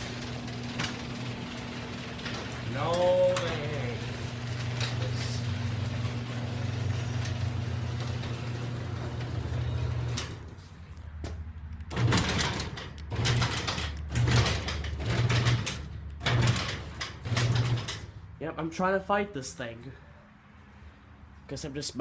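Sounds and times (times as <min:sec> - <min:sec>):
garage door rattling and clattering: 0:00.0 - 0:10.6, 0:11.9 - 0:18.2
garage door opener motor humming: 0:00.0 - 0:10.7, 0:11.9 - 0:18.2.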